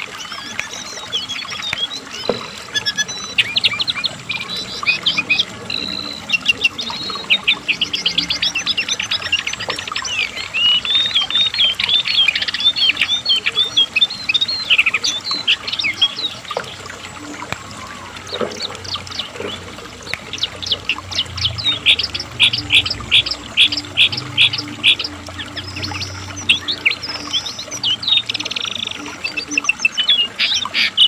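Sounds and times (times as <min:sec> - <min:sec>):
bird warbling high notes: 0:16.8 - 0:30.5.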